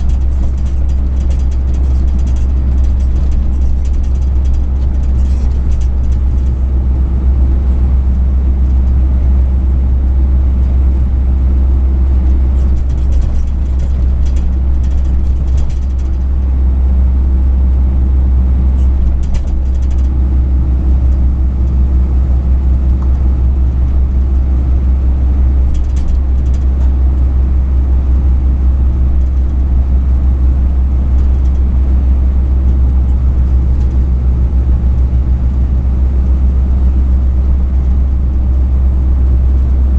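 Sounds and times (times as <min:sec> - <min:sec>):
faint light rattles: 0:00.0 - 0:06.8, 0:12.2 - 0:16.6, 0:18.7 - 0:35.4
truck engine and road rumble: 0:00.0 - 0:39.9.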